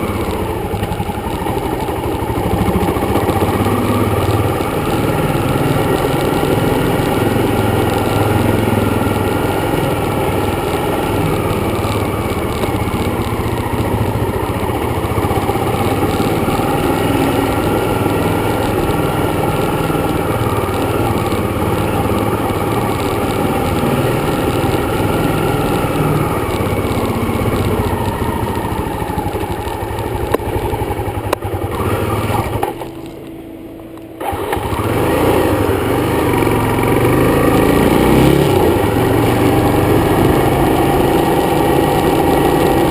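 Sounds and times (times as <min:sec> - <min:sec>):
dirt bike engine running: 0:00.0 - 0:42.9.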